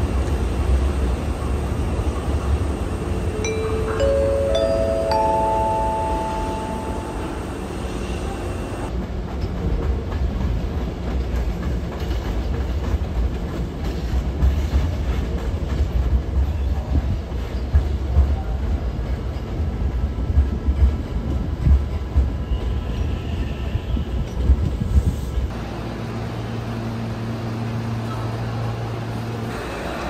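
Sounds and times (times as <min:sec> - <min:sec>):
train heavy low rumble: 0:00.0 - 0:30.0.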